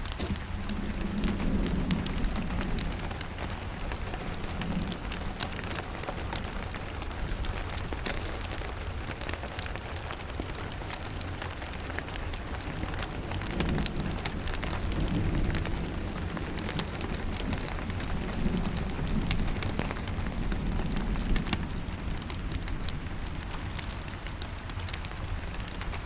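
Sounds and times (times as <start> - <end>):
low rumble: 0.0 - 8.0
rain hissing: 0.0 - 26.0
wood fire crackling: 0.0 - 26.0.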